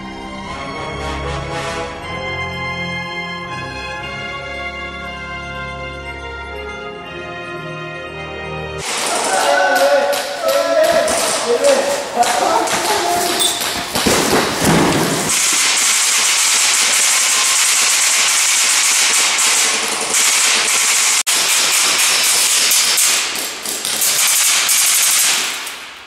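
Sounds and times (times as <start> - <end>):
fire extinguisher hissing: 8.8 - 9.7.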